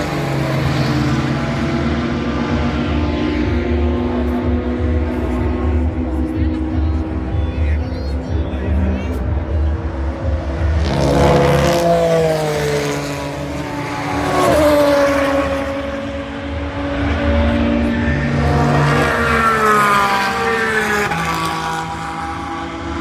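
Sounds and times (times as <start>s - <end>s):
race cars passing at speed: 0.0s - 23.0s.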